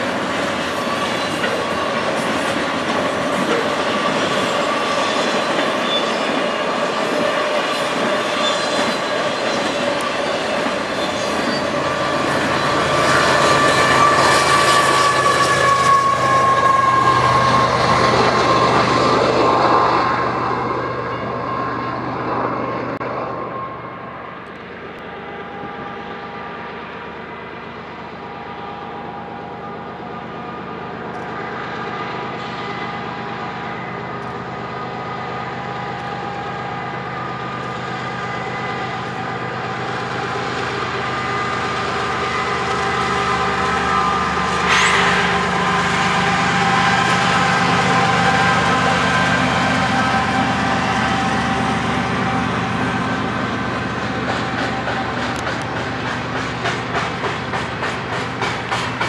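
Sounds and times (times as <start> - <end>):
high squeal: 0.0 - 55.4
diesel locomotive engines: 0.0 - 59.0
train rolling on rails: 0.0 - 59.0.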